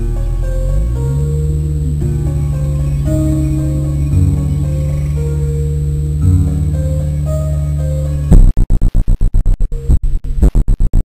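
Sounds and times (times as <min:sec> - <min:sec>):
bass-heavy music through car stereo: 0:00.0 - 0:08.5
heavy bass hit: 0:00.0 - 0:08.6.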